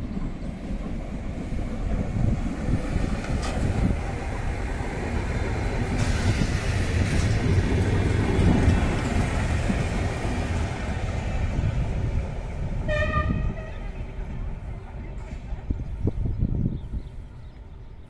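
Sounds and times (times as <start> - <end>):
train wheels rumbling: 0.0 - 18.0
train horn blast: 12.8 - 14.0.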